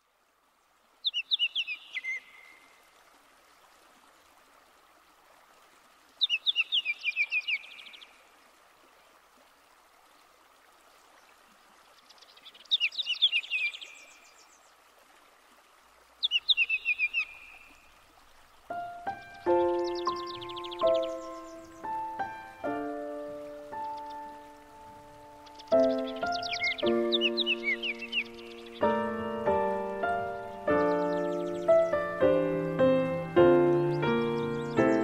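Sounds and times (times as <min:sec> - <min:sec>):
faint steady hiss: 0:00.0 - 0:35.0
songbird singing: 0:01.0 - 0:02.9, 0:06.2 - 0:08.3, 0:11.1 - 0:14.9, 0:16.1 - 0:35.0.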